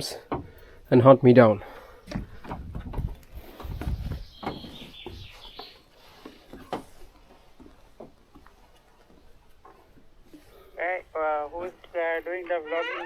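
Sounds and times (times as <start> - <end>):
footfalls on wooden boards: 2.0 - 5.6
high wavering creak: 12.6 - 13.0.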